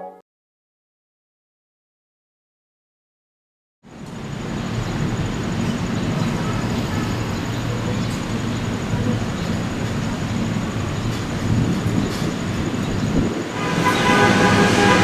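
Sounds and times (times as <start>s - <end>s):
train low rumble: 3.8s - 15.0s.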